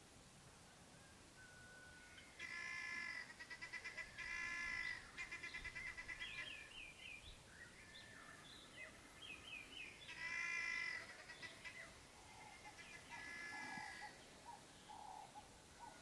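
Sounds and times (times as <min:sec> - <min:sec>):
long drawn-out bird call: 0:01.0 - 0:07.0, 0:09.9 - 0:16.0.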